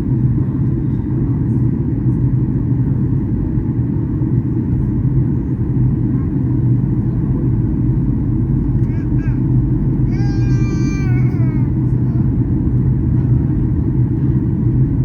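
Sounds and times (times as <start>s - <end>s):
airliner cabin engine drone: 0.0s - 15.0s
even hum: 6.5s - 15.0s.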